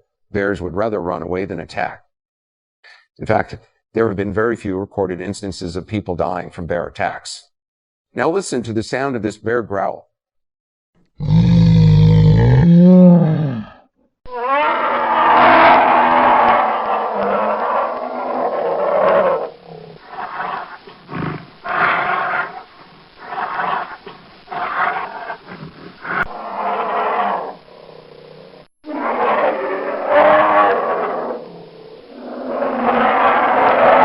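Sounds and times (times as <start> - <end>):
bear growling and roaring: 11.2 - 34.0.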